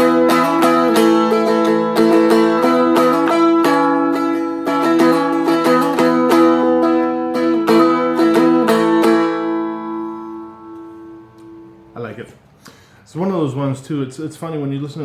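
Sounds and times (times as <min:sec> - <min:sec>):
strumstick strummed in chords: 0:00.0 - 0:11.9.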